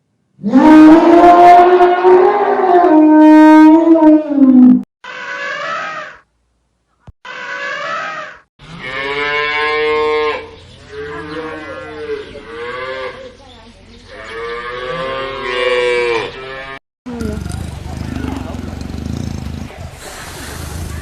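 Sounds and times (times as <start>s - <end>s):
cow mooing: 8.6s - 13.3s, 14.2s - 16.8s.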